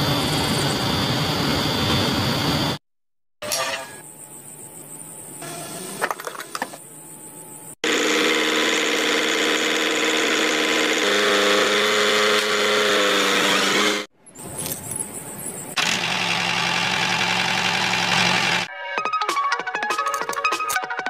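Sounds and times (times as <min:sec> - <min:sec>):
small motor whining: 0:07.8 - 0:14.7, 0:15.7 - 0:18.7.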